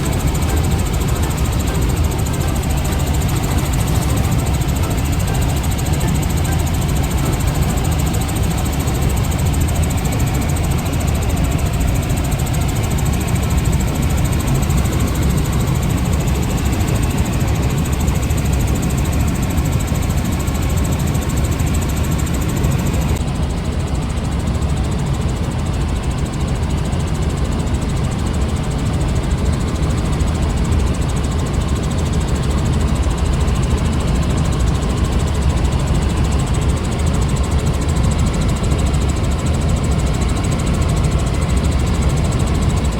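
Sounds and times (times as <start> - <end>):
low engine running: 0.0 - 23.2.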